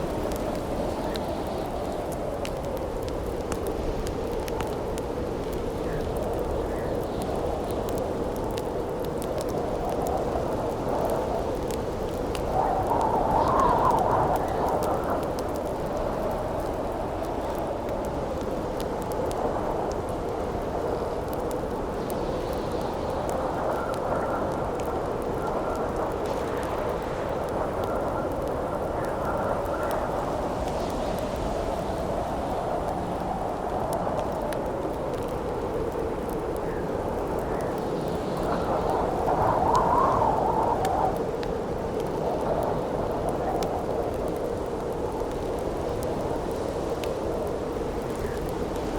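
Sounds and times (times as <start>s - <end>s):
campfire crackling and popping: 0.0s - 48.9s
wind gusting: 22.5s - 48.9s.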